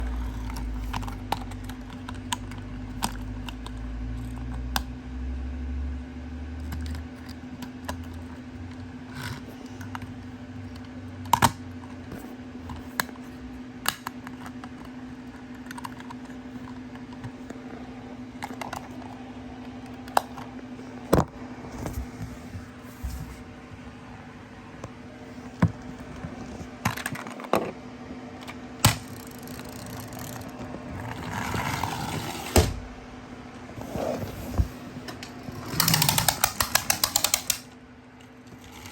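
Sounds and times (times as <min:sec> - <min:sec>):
steady low hum: 0:00.0 - 0:38.9
clicks and taps of toy parts: 0:35.8 - 0:37.7.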